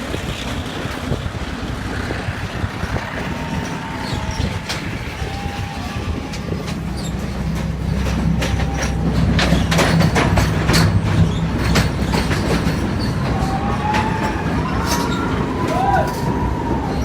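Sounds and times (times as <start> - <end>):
diesel locomotive engine drone: 0.0 - 17.0
wheels clicking over rail joints: 0.0 - 17.0
faint wheel squeal: 11.2 - 17.0.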